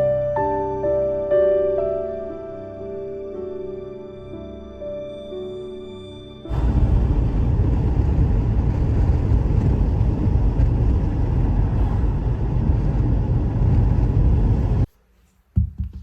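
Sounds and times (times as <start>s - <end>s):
vehicle rumbling in motion: 6.5s - 14.9s.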